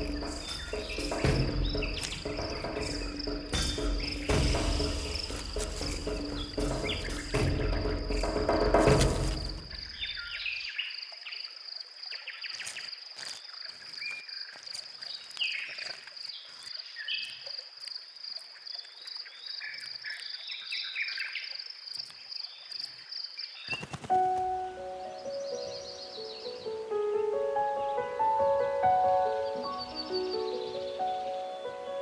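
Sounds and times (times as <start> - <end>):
background music: 0.0 - 9.9, 24.2 - 32.0
high insect trill: 0.0 - 27.4.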